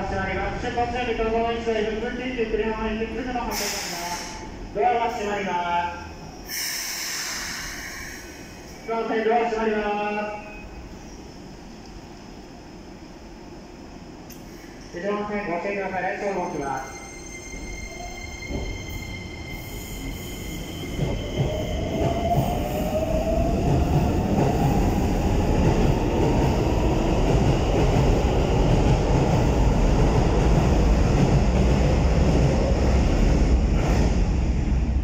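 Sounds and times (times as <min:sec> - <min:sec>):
train wheels running: 0:16.4 - 0:34.2.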